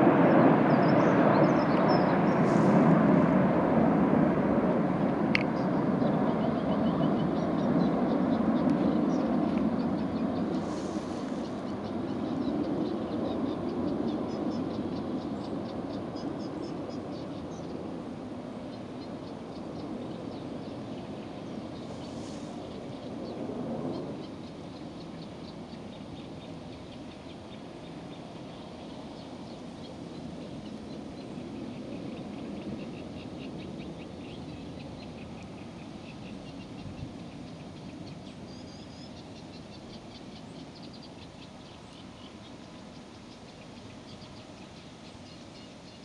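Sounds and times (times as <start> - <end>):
small bird chirping: 18.7 - 46.0.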